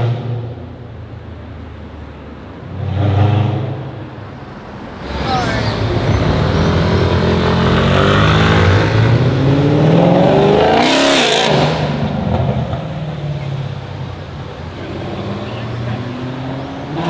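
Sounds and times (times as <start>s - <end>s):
car engine accelerating hard: 5.0s - 12.8s.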